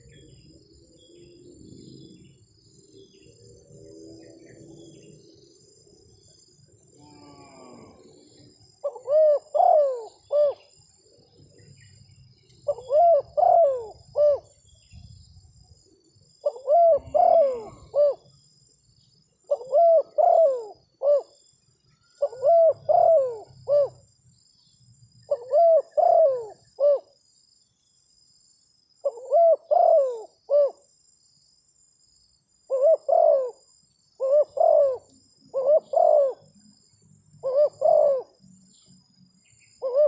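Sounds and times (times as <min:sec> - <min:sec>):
dove cooing: 0:08.8 - 0:10.7, 0:12.7 - 0:14.6, 0:16.4 - 0:18.3, 0:19.5 - 0:21.4, 0:22.2 - 0:24.0, 0:25.3 - 0:27.1, 0:29.0 - 0:30.8, 0:32.7 - 0:36.5, 0:37.4 - 0:38.4, 0:39.8 - 0:40.0.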